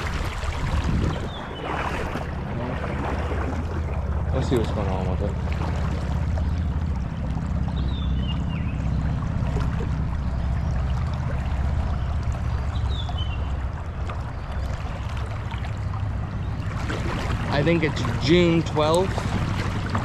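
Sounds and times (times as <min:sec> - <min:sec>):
water rushing over rocks: 0:00.0 - 0:04.6
low rumble: 0:00.0 - 0:20.0.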